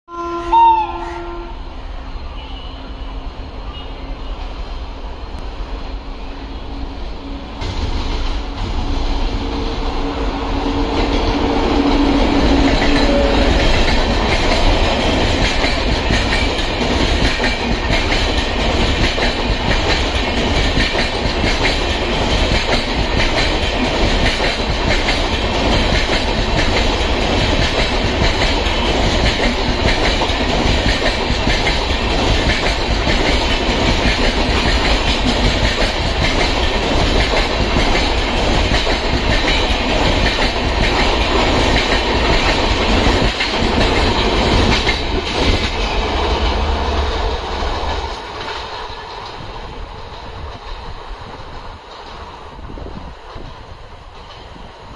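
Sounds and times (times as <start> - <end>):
train wheels rolling on rail: 1.1 - 54.9
wheels clicking over rail joints: 10.9 - 45.9.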